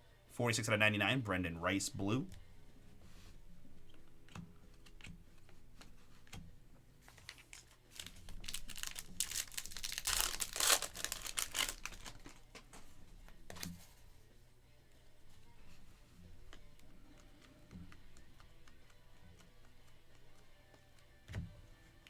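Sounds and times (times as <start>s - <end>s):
light clicks of card handling: 2.0s - 9.6s, 15.4s - 22.0s
foil wrapper crinkling and tearing: 7.1s - 12.6s.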